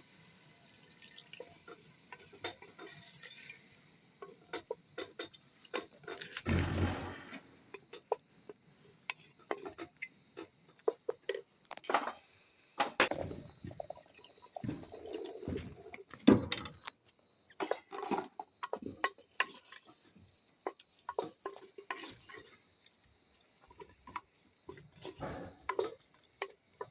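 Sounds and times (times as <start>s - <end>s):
utensils clinking on pots: 11.2s - 13.3s, 24.7s - 26.9s.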